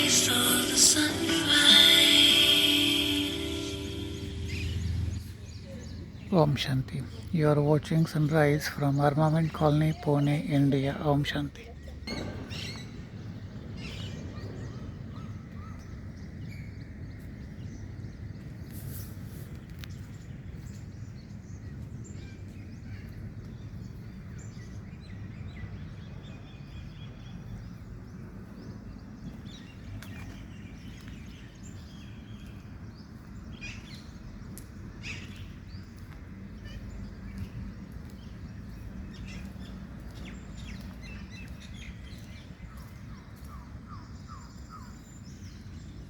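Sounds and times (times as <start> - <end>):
low rumble: 0.0 - 6.2
birds chirping: 0.0 - 18.6, 19.6 - 46.0.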